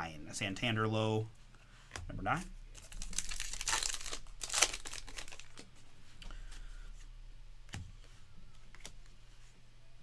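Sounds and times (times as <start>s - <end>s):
card pack wrapper crinkling: 2.8s - 5.7s
cards being handled and flipped: 7.7s - 9.4s.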